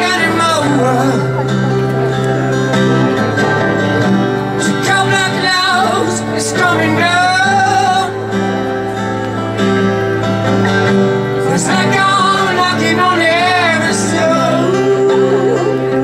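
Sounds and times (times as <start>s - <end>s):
person singing: 11.4s - 16.0s.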